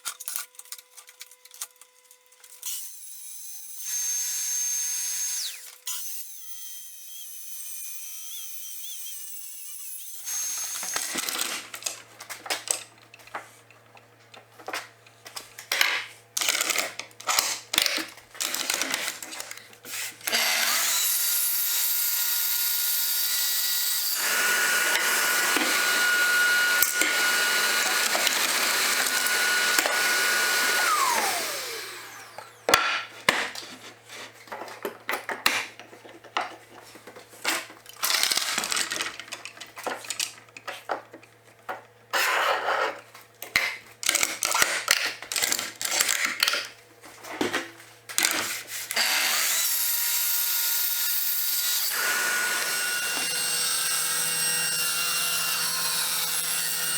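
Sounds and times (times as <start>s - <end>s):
power tool whining: 1.5s - 7.3s, 20.0s - 32.8s, 49.0s - 56.9s.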